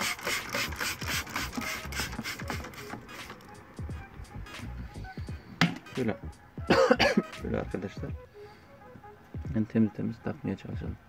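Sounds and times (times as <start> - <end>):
hand scrubbing strokes: 0.0 - 3.5
background music: 0.0 - 11.0.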